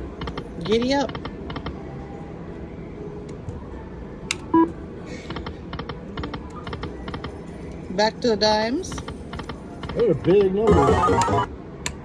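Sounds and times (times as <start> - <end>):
steady casino hum: 4.4 - 5.0, 10.6 - 11.5
slot machine reels clicking: 10.7 - 11.5.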